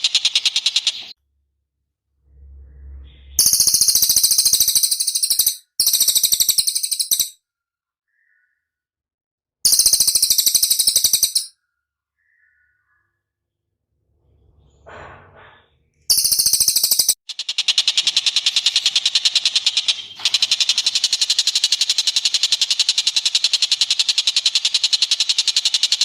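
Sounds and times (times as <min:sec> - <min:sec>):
faint low rumble: 0:01.3 - 0:03.5
bird calling high-pitched notes: 0:02.6 - 0:07.4, 0:09.7 - 0:11.5.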